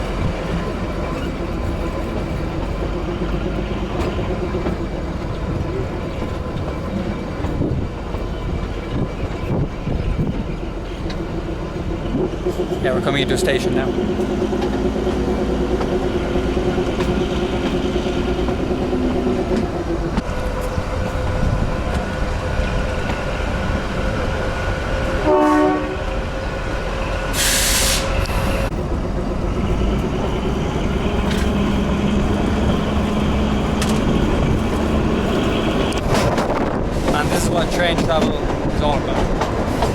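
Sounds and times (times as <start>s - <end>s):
train wheels rumbling on rails: 0.0s - 39.9s
train horn toot: 25.2s - 26.2s
air hiss: 27.3s - 28.7s.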